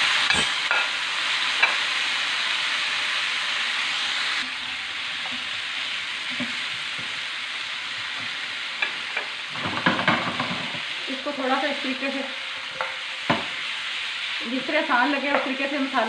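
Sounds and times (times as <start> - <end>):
chicken sizzling in hot oil: 0.0 - 16.0
wooden spatula knocking pan: 9.6 - 10.8, 12.8 - 13.6, 15.2 - 15.6.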